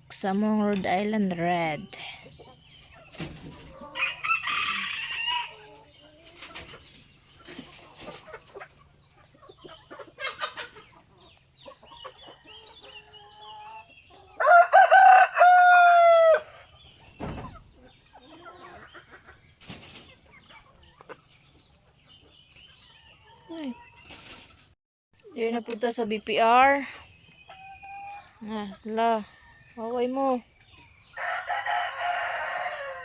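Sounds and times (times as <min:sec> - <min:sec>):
hens clucking: 0:00.3 - 0:24.8, 0:26.5 - 0:33.0
rooster crowing: 0:03.9 - 0:05.6, 0:14.4 - 0:16.5, 0:31.2 - 0:33.0.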